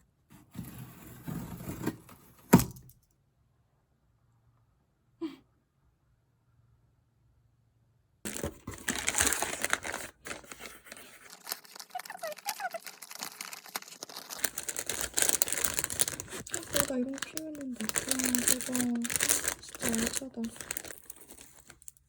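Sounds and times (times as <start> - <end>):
packaging crinkling: 8.3 - 22.0.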